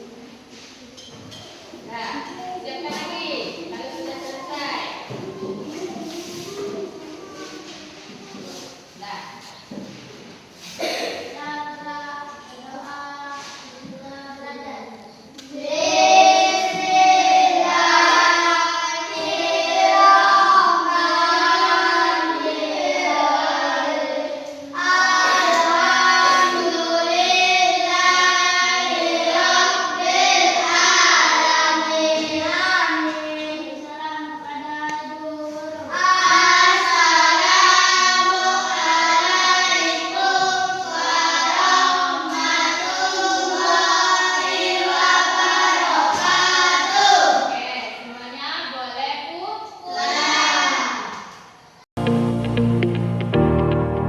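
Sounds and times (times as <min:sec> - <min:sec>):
children singing in chorus: 0:15.4 - 0:47.5, 0:49.8 - 0:51.4.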